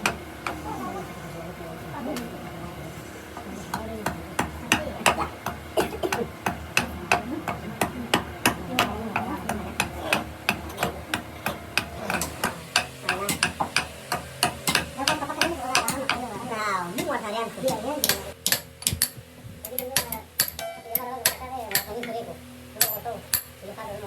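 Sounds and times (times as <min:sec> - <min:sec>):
hand tool knocking on wood: 0:03.7 - 0:16.3.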